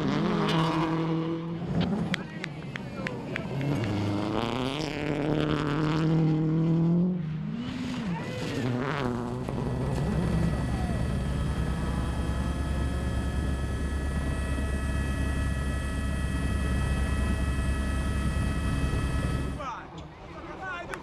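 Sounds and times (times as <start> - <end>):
helicopter rotor beat: 9.1 - 19.9
helicopter turbine whine: 9.1 - 21.0.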